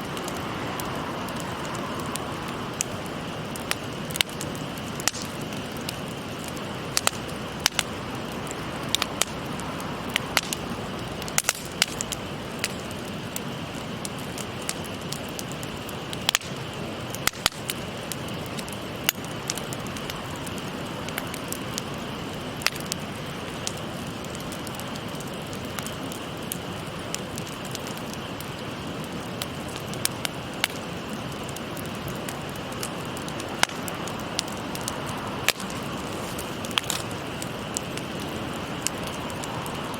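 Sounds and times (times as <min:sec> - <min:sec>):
stream rushing: 0:00.0 - 0:04.1, 0:32.2 - 0:39.9
campfire crackling and popping: 0:00.0 - 0:39.9.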